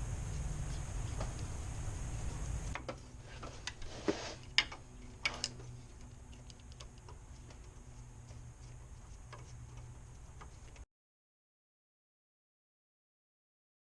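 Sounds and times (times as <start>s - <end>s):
low steady hum: 0.0s - 10.8s.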